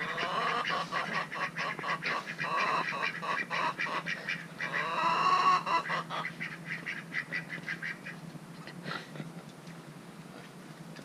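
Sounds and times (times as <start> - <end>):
ducks quacking: 0.0 - 8.2.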